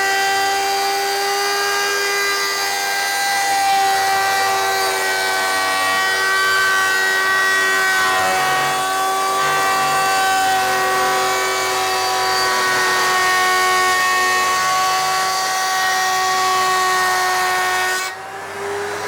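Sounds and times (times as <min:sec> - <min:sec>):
router motor whine: 0:00.0 - 0:19.0.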